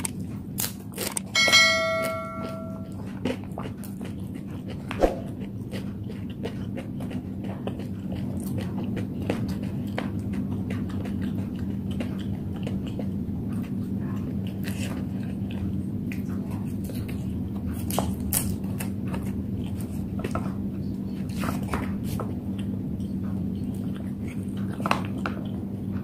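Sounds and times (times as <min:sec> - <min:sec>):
chewing noodles: 0:00.0 - 0:01.4, 0:02.8 - 0:26.0
low steady hum: 0:00.0 - 0:03.9.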